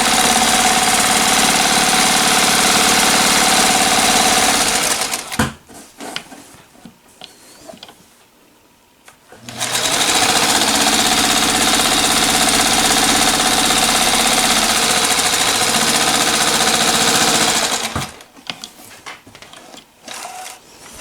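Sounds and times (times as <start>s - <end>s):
sewing machine running fast: 0.0s - 5.4s, 9.4s - 18.2s.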